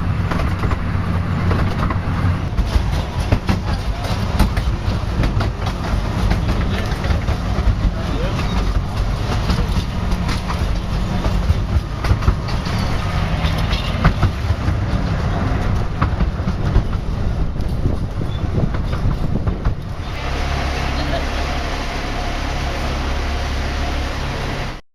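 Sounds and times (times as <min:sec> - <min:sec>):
wheels clacking over rail joints: 0:00.0 - 0:24.6
miniature train rumbling: 0:00.0 - 0:24.8.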